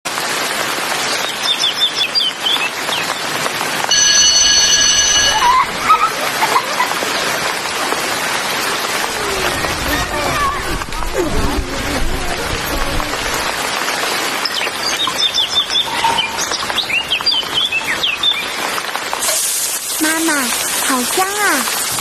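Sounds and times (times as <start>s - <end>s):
steady rain: 0.1s - 22.0s
high ringing tone: 3.9s - 6.0s
birds chirping: 12.6s - 18.9s.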